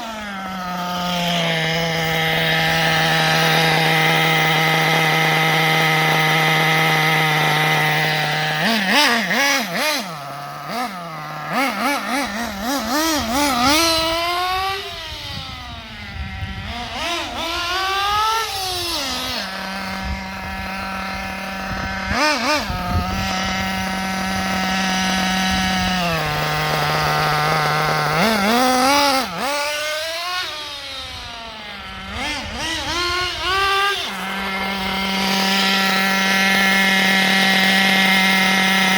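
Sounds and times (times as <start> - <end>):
nitro engine idling and revving: 0.0 - 38.9.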